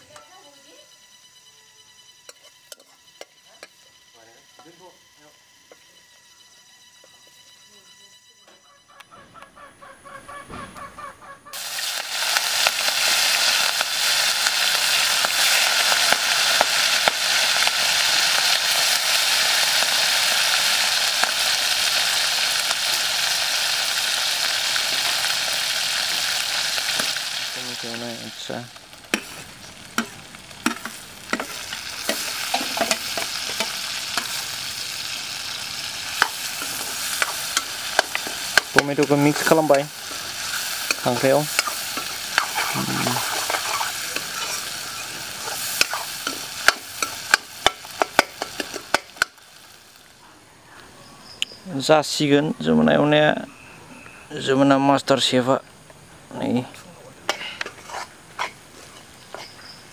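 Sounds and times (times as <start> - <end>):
food sizzling in hot oil: 11.5 - 50.2
metal spoon clicking on pan: 37.2 - 38.9.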